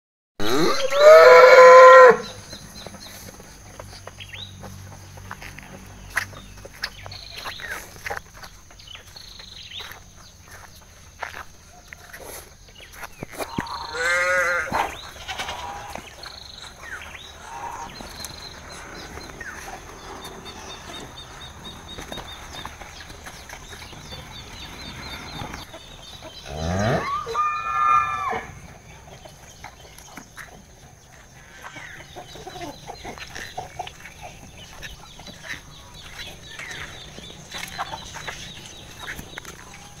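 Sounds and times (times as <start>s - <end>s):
cow mooing: 0.4s - 2.2s, 26.5s - 28.6s.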